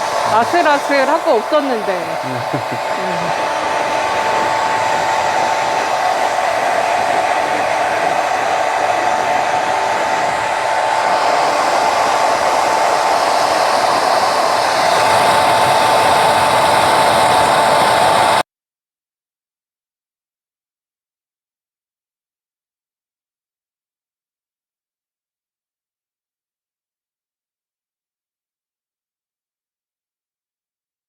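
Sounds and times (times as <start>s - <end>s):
hair dryer blowing with whine: 0.0s - 18.4s.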